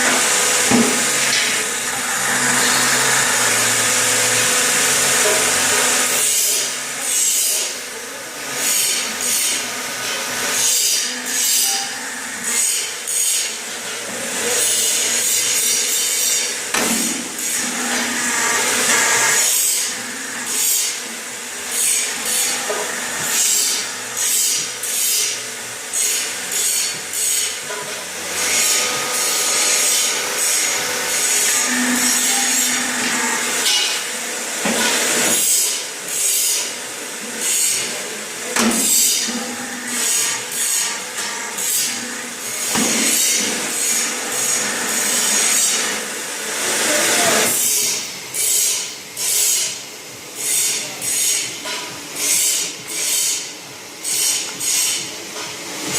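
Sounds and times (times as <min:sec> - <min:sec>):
hydraulic press scraping: 0:00.0 - 0:07.8, 0:08.6 - 0:49.8.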